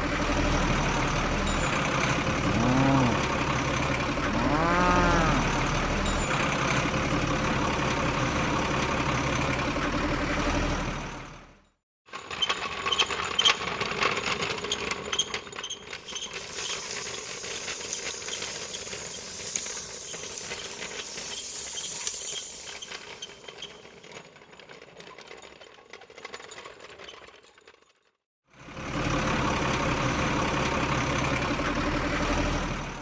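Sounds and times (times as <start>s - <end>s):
small motor whirring: 12.2s - 26.5s
gears clicking: 12.2s - 28.0s
hiss: 16.2s - 23.9s.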